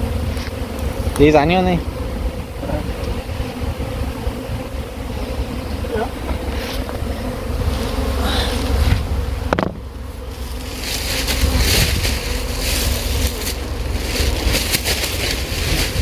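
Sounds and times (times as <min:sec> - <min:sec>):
wind rumble on microphone: 0:00.0 - 0:07.1, 0:11.1 - 0:16.0
bees buzzing: 0:00.0 - 0:16.0
brief knock: 0:08.9 - 0:09.8.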